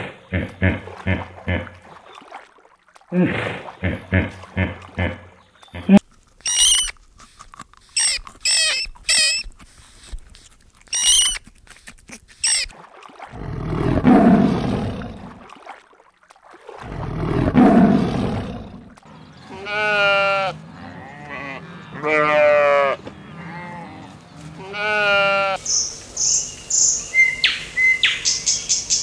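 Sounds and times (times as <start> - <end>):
high-pitched squawking calls: 5.8 - 7.0, 8.0 - 9.5, 10.9 - 11.4, 12.4 - 12.7
tiger roaring: 13.3 - 15.4, 16.8 - 23.6
sheep bleating: 19.4 - 25.6.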